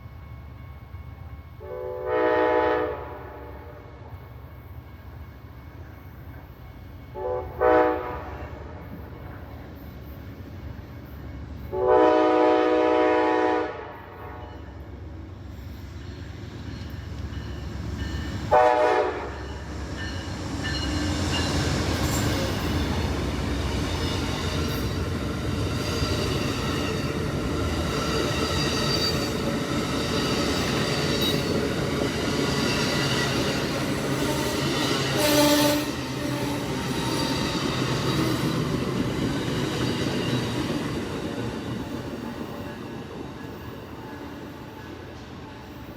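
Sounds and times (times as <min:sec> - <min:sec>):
train rumbling past: 0:00.0 - 0:45.9
train horn blasts: 0:01.6 - 0:04.1, 0:07.1 - 0:09.1, 0:11.7 - 0:14.8, 0:18.5 - 0:19.6, 0:34.1 - 0:36.8.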